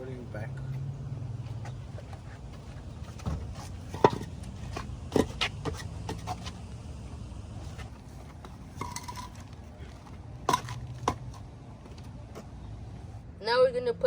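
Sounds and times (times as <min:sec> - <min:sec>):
low steady hum: 0:00.0 - 0:14.0
wheel blocks knocking: 0:03.1 - 0:06.5, 0:08.4 - 0:09.6, 0:10.5 - 0:11.5.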